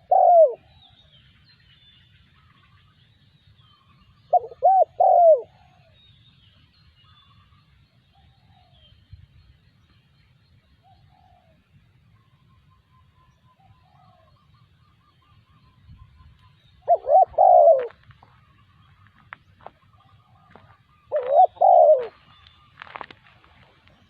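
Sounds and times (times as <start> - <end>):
dove cooing: 0.0 - 0.7, 4.3 - 6.0, 10.8 - 11.6, 16.8 - 18.4, 20.0 - 23.0
small birds calling: 0.0 - 24.0.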